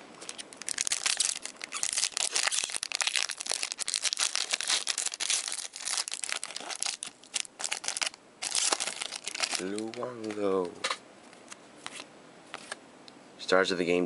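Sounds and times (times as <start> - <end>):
wrapper crinkling and tearing: 0.2 - 10.7.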